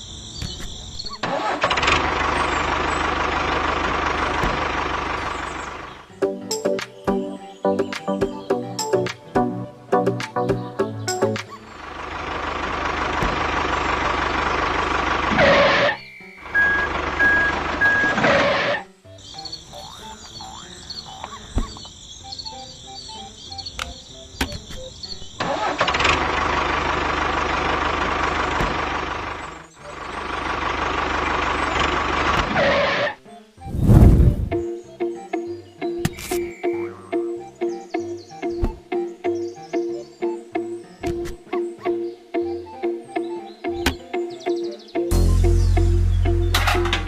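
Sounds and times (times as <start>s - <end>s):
vehicle engine revving: 1.3s - 6.1s, 25.4s - 33.1s
music: 5.9s - 12.0s, 15.6s - 25.4s, 32.4s - 47.0s.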